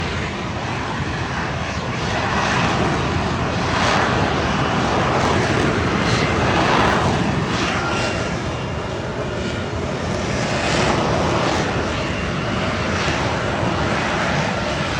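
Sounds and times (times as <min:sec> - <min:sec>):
jet engine roaring: 0:00.0 - 0:14.9.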